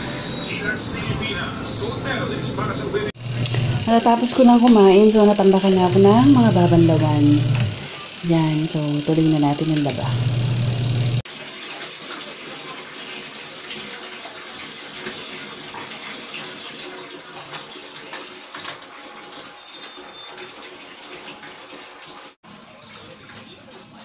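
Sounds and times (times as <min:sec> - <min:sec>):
loud low hum: 0:00.0 - 0:11.2
water running into tub: 0:03.1 - 0:24.0.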